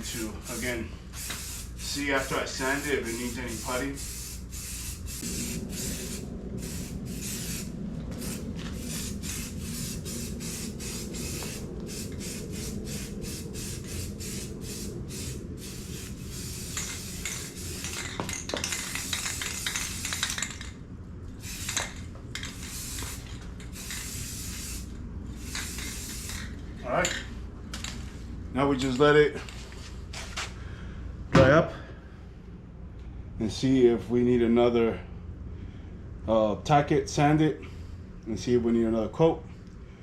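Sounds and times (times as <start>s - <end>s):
aerosol can spraying hiss: 0.4s - 18.0s, 18.8s - 20.4s, 21.4s - 26.5s.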